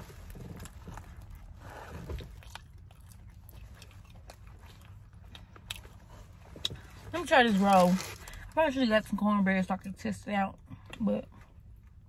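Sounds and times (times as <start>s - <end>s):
person chewing food: 0.1s - 7.0s.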